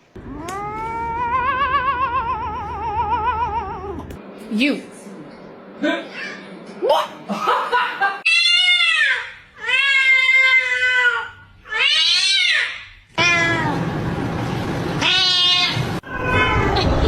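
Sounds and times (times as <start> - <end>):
cat meowing: 13.2 - 13.8, 15.0 - 17.0.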